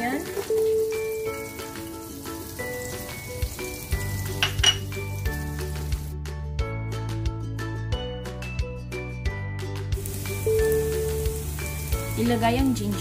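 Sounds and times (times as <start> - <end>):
onion sizzling in a pan: 0.0 - 6.2, 9.9 - 13.0
light instrumental music: 0.0 - 13.0.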